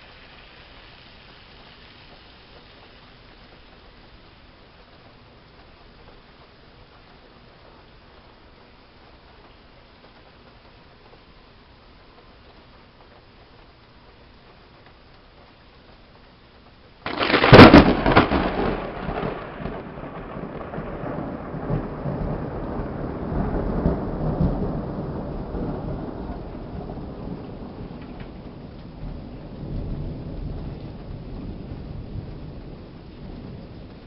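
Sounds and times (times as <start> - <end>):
steady rain: 0.0 - 34.0
loud thunderclap: 17.0 - 34.0
rolling thunder rumbles: 17.0 - 34.0.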